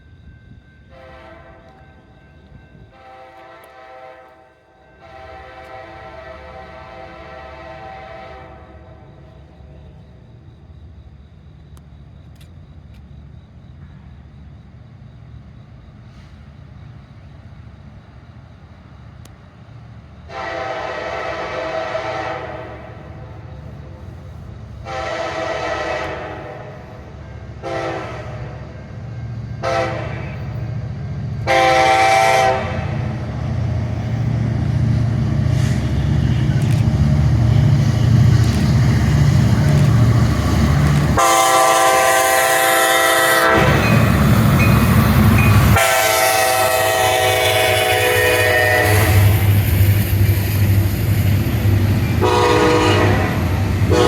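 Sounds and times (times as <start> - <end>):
diesel locomotive rumble: 0.0 - 54.0
locomotive air horn blasts: 0.9 - 1.8, 2.9 - 9.1, 20.3 - 23.2, 24.8 - 28.6, 29.6 - 30.6, 31.4 - 33.1, 41.2 - 44.1, 45.5 - 49.6, 52.2 - 54.0.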